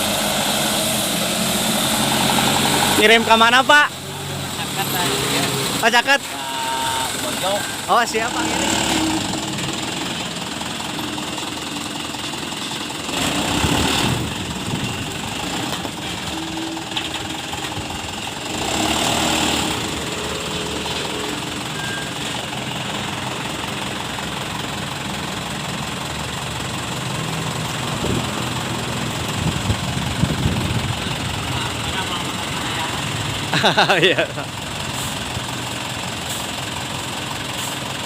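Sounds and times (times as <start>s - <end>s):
dump truck diesel engine: 0.0s - 38.0s.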